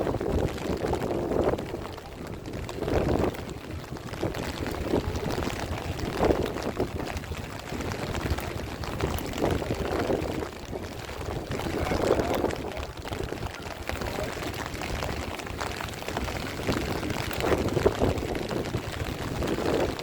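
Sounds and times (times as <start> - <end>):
heavy rain: 0.0 - 20.0
wind rumbling on microphone: 0.0 - 20.0.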